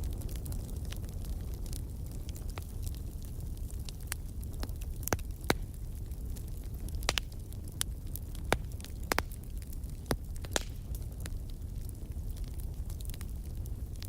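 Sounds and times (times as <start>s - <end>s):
fire popping and snapping: 0.0s - 14.0s
low rumble of flames: 0.0s - 14.0s.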